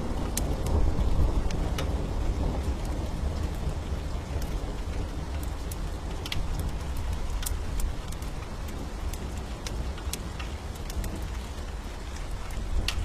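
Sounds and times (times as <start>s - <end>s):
steady rain: 0.0s - 13.0s
wood fire crackling: 0.0s - 13.0s.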